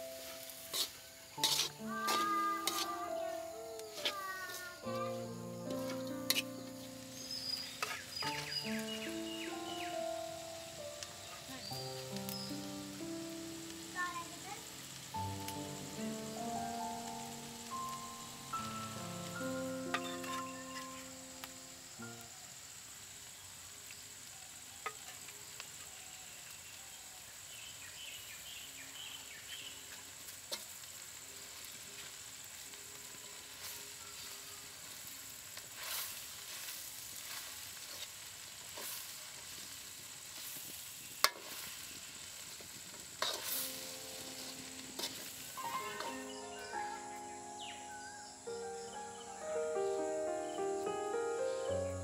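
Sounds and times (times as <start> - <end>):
food sizzling: 0.0 - 52.0
stirring: 0.7 - 3.0.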